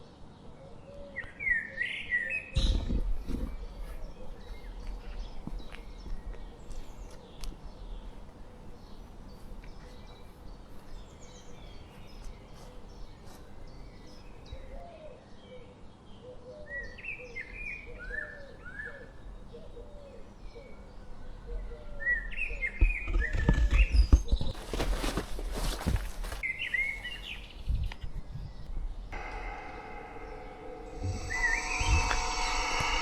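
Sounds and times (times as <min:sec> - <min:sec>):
songbirds chirping and singing: 0:00.3 - 0:15.0, 0:16.1 - 0:33.0
low thumps: 0:02.6 - 0:14.7, 0:27.7 - 0:33.0
low rumble: 0:28.6 - 0:33.0.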